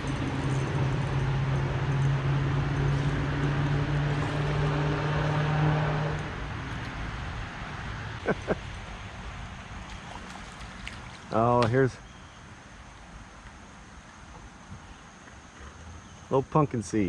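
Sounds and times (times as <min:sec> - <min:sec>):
low engine hum: 0:00.0 - 0:16.3.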